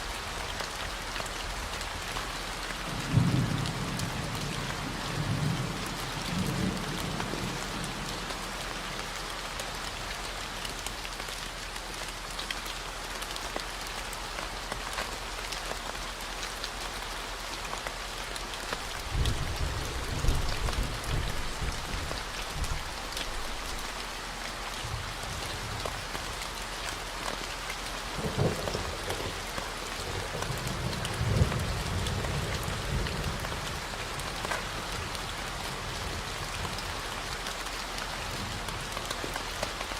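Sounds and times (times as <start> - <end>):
rain falling: 0.0 - 39.9
low rolls of thunder: 19.0 - 22.9.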